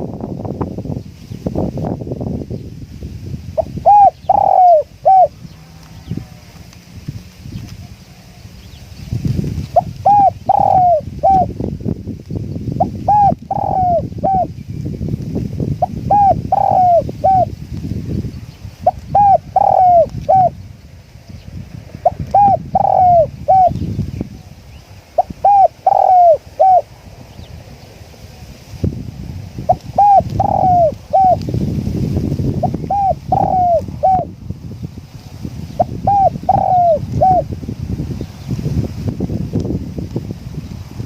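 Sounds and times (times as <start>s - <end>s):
wind rumbling on microphone: 0.0s - 41.0s
dove cooing: 3.6s - 5.4s, 9.8s - 11.5s, 12.8s - 14.5s, 15.8s - 17.5s, 18.8s - 20.6s, 22.0s - 23.8s, 25.2s - 26.9s, 29.7s - 31.4s, 32.6s - 34.3s, 35.8s - 37.5s.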